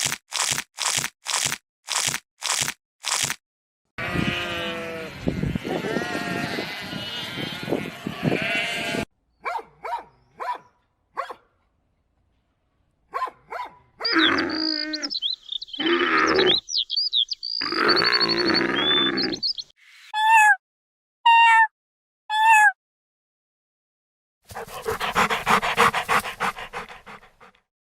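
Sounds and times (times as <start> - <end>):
animal calls: 14.0 - 16.9, 17.6 - 19.7, 24.5 - 27.5.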